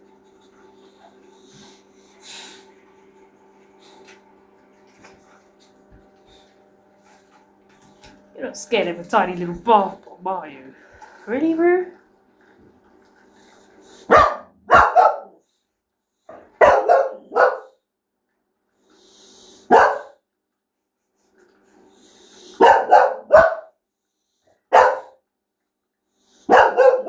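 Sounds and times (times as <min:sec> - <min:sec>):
puppy barking: 0:14.1 - 0:15.4, 0:16.3 - 0:17.8, 0:19.7 - 0:20.2, 0:22.6 - 0:23.7, 0:24.7 - 0:25.2, 0:26.5 - 0:27.0.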